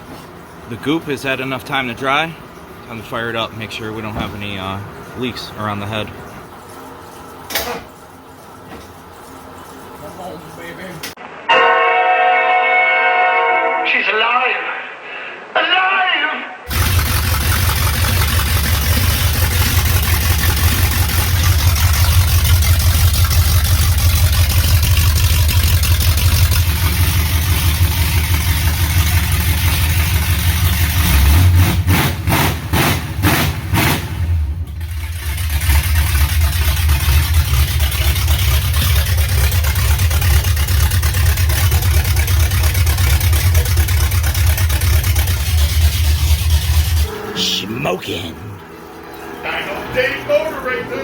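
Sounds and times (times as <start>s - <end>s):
car engine running loud: 16.7s - 47.7s.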